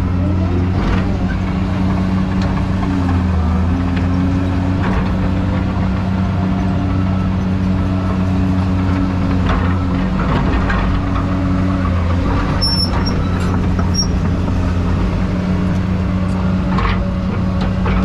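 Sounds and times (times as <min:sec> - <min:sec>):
excavator diesel engine running: 0:00.0 - 0:18.0
high squeaks and clicks: 0:12.4 - 0:14.5.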